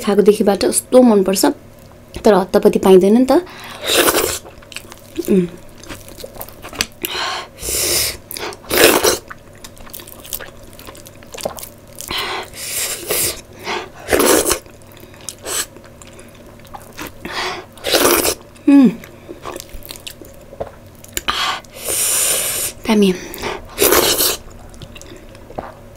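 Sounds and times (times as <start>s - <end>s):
person humming: 5.2s - 5.6s, 18.6s - 19.0s
wet chewing and lip smacks: 9.3s - 12.1s, 24.4s - 25.9s.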